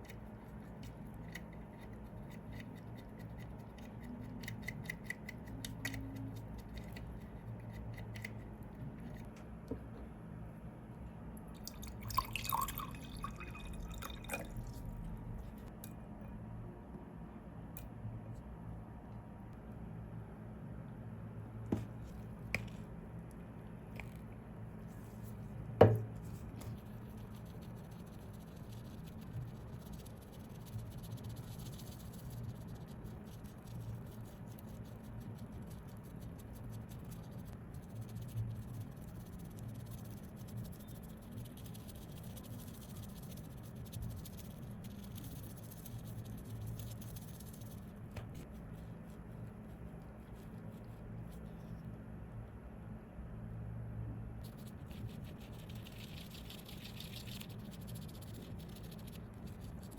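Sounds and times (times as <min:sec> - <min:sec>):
low steady hum: 0:00.0 - 0:59.9
soft scratching: 0:24.0 - 0:25.6, 0:38.0 - 0:52.0.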